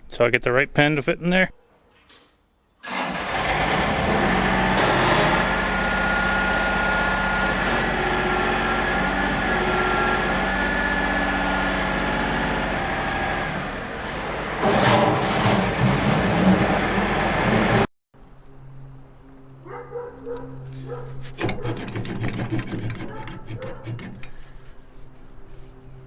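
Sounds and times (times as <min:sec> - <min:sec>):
tractor diesel engine running: 0:02.8 - 0:17.9, 0:21.4 - 0:24.6.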